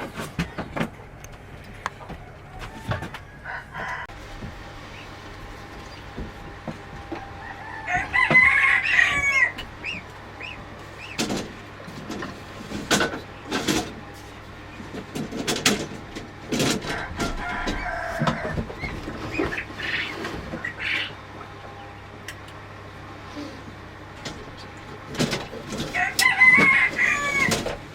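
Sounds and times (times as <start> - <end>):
chickens calling: 0.0 - 27.9
rooster crowing: 2.0 - 4.2, 6.9 - 10.0, 16.6 - 18.8, 25.8 - 27.8.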